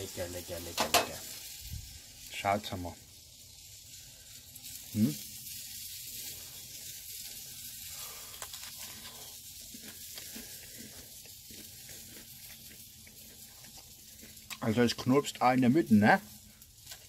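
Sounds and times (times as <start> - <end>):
steady hiss: 0.0 - 17.0
crunching pizza crust: 3.9 - 17.0.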